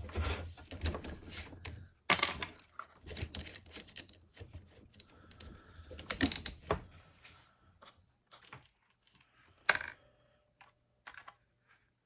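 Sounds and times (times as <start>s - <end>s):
small parts and tools clicking: 0.7s - 6.7s, 7.8s - 11.5s.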